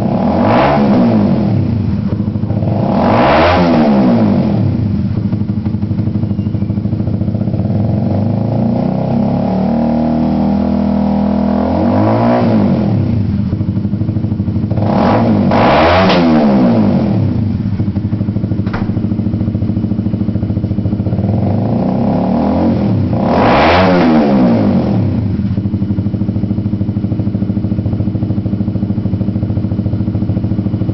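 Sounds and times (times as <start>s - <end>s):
motorcycle engine revving: 0.0s - 30.9s
sharp click: 18.6s - 19.1s.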